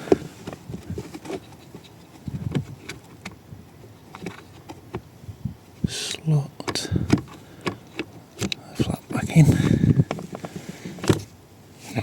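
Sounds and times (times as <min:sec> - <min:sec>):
plastic parts clicking and tapping: 0:06.6 - 0:08.9.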